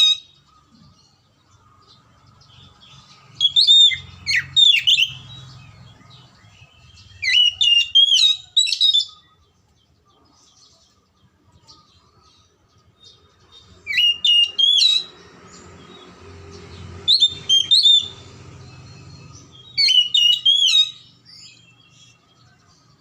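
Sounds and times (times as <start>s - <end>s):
bird singing whistled phrases: 3.4s - 5.4s, 6.1s - 9.4s, 13.8s - 15.2s, 17.0s - 22.7s.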